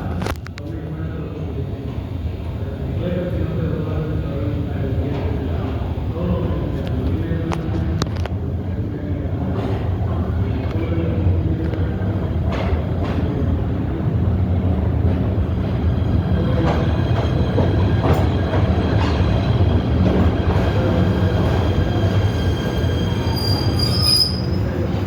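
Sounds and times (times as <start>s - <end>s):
subway train rumbling in tunnel: 0.0s - 25.0s
high-pitched wheel squeal: 22.2s - 25.0s.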